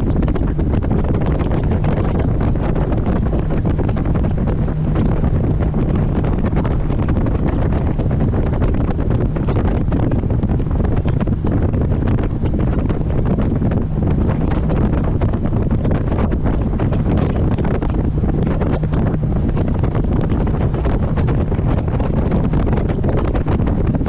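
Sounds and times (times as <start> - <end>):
boat engine hum: 0.0 - 24.0
wind buffeting microphone: 0.0 - 24.0.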